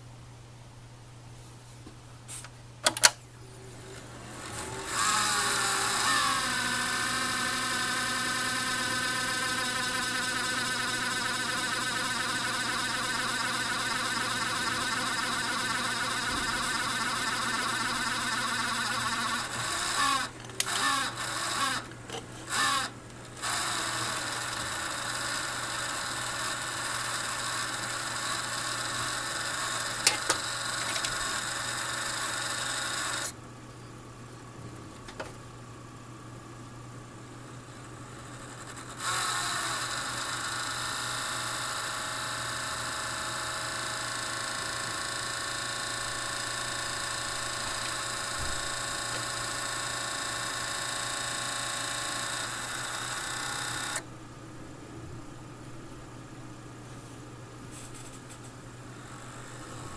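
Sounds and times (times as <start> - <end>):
fan whining: 2.8 - 35.7.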